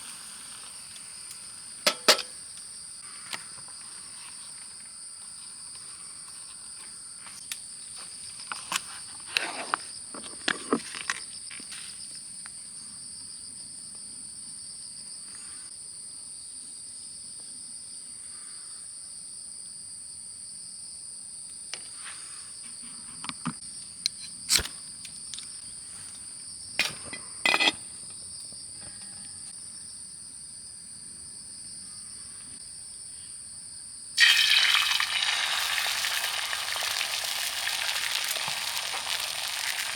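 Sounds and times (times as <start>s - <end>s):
food sizzling in hot pan: 0.0s - 2.6s, 34.2s - 39.9s
shrill insect chorus: 34.1s - 39.9s.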